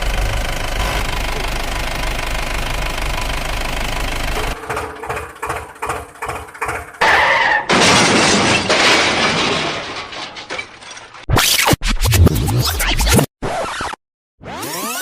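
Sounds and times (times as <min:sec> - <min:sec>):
cartoon crash with glass breaking: 0:07.0 - 0:11.8.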